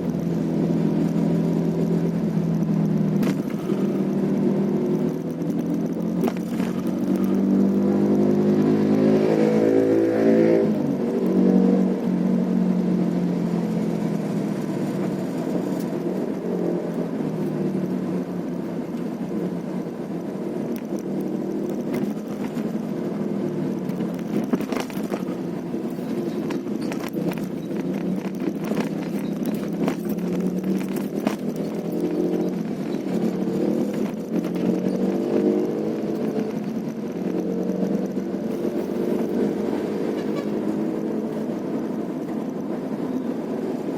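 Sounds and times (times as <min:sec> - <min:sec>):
road noise: 0:00.0 - 0:43.9
vehicle engine revving: 0:00.0 - 0:43.9.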